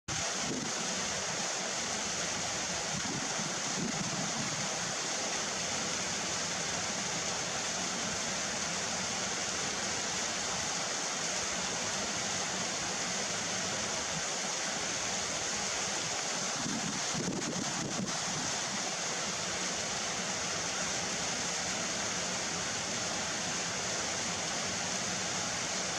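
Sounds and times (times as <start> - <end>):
strong wind rushing: 16.6 - 18.2.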